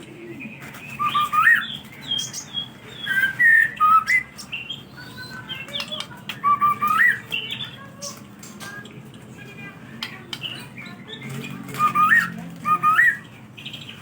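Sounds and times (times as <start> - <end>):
bird singing whistled phrases: 0.9 - 2.4, 3.0 - 7.6, 11.7 - 13.2
bird sharp chips: 10.0 - 14.0.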